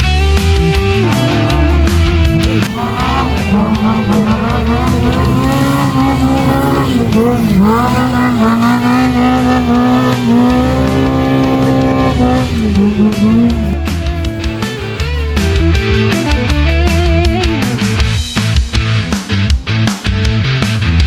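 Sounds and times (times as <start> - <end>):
rally car engine at high revs: 0.0 - 21.0
rock music: 0.0 - 21.0.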